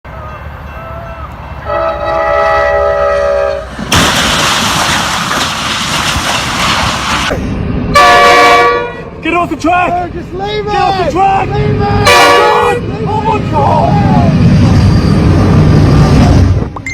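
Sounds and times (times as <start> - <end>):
train wheels roaring on rails: 0.1 - 16.9
train air horn blasting: 0.4 - 3.7, 7.9 - 9.1, 12.0 - 12.8.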